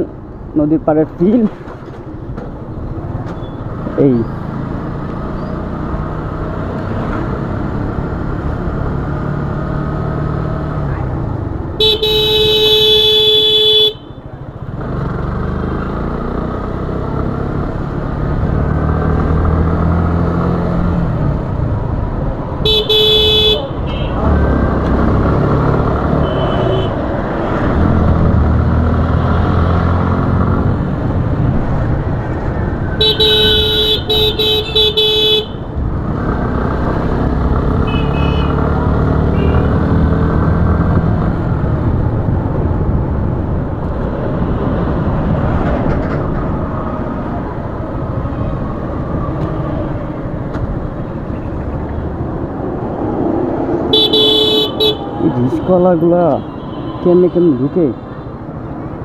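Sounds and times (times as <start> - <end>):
horn honking: 11.8 - 14.2, 22.6 - 24.4, 26.1 - 27.1, 33.0 - 35.7, 37.7 - 40.0, 53.9 - 58.4
motorcycle engine: 31.9 - 55.2.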